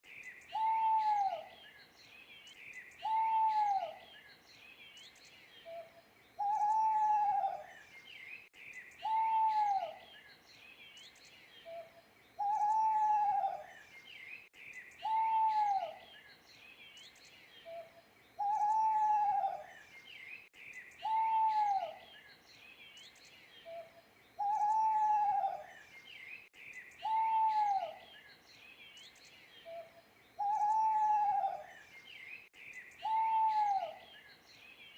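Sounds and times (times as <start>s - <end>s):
owl hooting: 0.5s - 1.5s, 3.0s - 4.0s, 6.4s - 7.7s, 9.0s - 10.0s, 12.4s - 13.7s, 15.0s - 16.0s, 18.4s - 19.7s, 21.0s - 22.0s, 24.4s - 25.8s, 27.0s - 28.0s, 29.7s - 31.8s, 33.0s - 34.1s.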